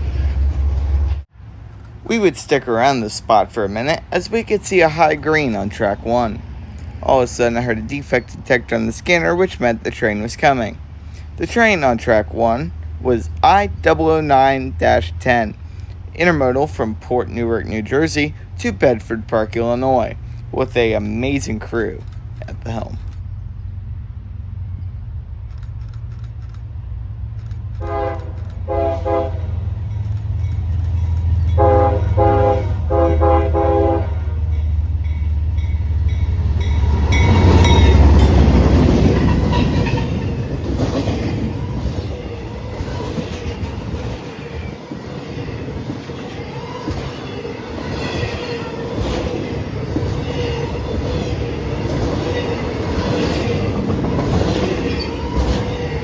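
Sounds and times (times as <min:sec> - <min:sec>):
locomotive engine rumble: 0:00.0 - 0:56.0
train wheel clatter: 0:27.4 - 0:32.5, 0:34.4 - 0:56.0
train horn blasts: 0:27.8 - 0:29.8, 0:31.4 - 0:40.5.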